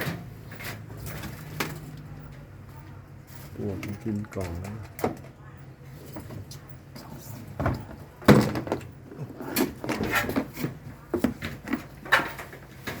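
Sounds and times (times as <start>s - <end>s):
hard objects knocking and clattering: 7.6s - 13.0s.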